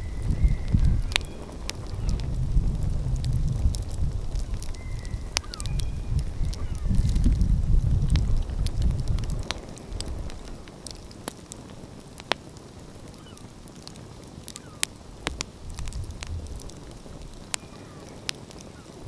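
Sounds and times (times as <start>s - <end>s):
sharp pops of fire: 0.0s - 19.0s
wood fire crackling: 0.0s - 19.0s
low rumble: 15.2s - 17.4s.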